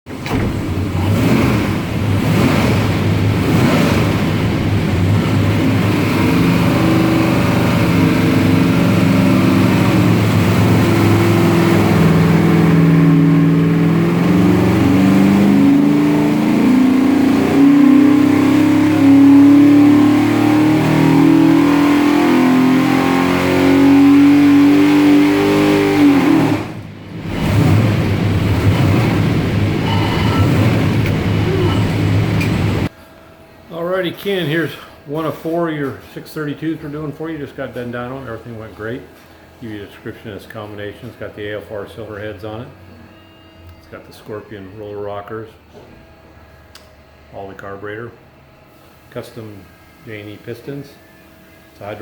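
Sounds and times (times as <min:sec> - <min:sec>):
big engine revving on dyno: 0:00.1 - 0:32.9, 0:45.7 - 0:52.0.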